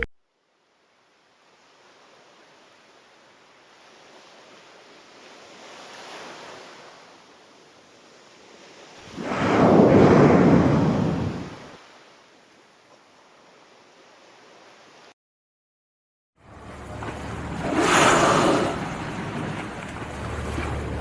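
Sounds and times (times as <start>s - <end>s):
ocean surf rushing: 8.9s - 11.9s, 16.4s - 21.0s.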